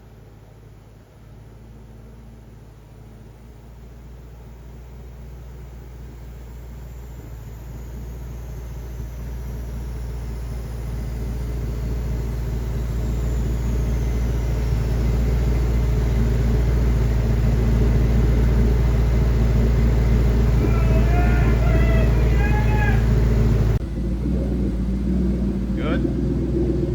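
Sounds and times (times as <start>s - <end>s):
vehicle low rumble: 0.0s - 26.9s.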